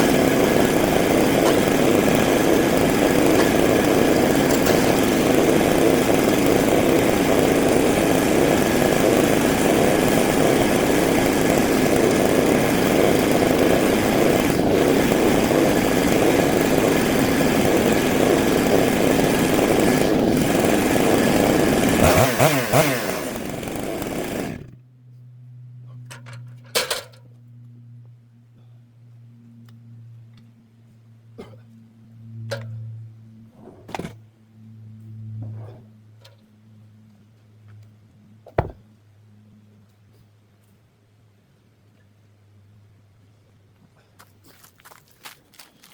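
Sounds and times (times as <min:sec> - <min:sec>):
chainsaw cutting wood: 0:00.0 - 0:24.8.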